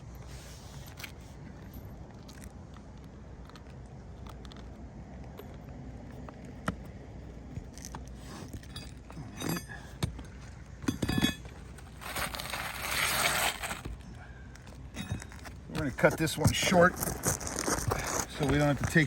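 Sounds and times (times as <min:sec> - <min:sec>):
shingles scraping rustle: 0:11.8 - 0:14.0, 0:15.3 - 0:19.0.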